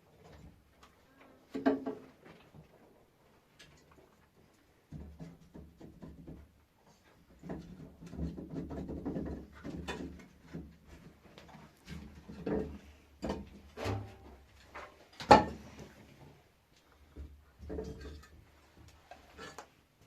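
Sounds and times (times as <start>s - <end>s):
objects knocking and clattering: 1.5s - 2.7s, 4.9s - 16.0s, 17.0s - 19.8s.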